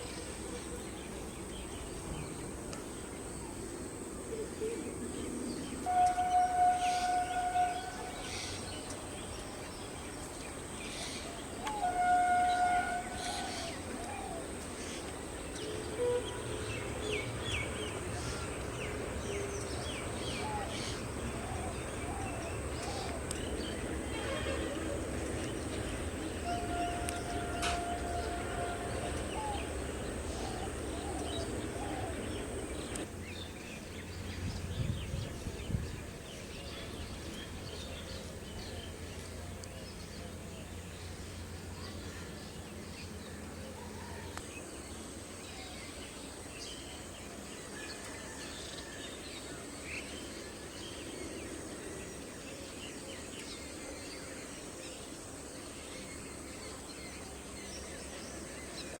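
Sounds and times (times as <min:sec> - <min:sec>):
outdoor background rumble: 0:12.9 - 0:44.7.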